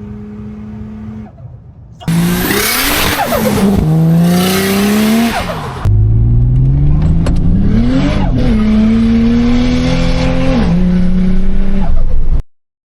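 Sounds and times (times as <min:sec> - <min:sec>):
car engine accelerating: 0:02.1 - 0:12.4.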